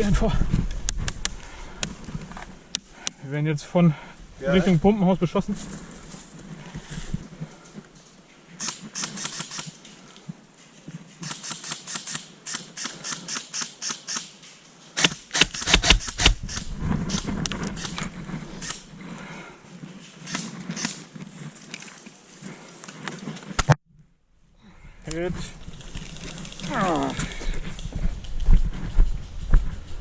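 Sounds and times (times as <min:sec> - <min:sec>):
airsoft guns firing: 0:15.0 - 0:16.4.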